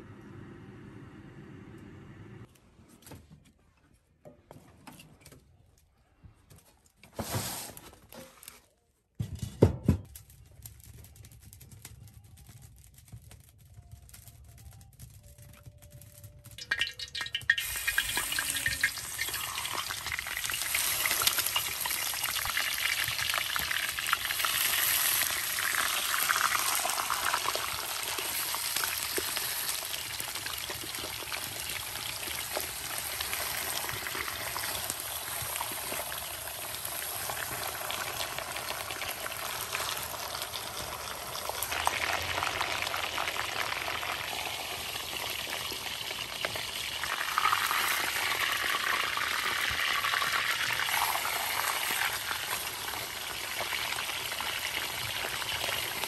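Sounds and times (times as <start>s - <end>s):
food sizzling in a pan: 16.6s - 56.0s.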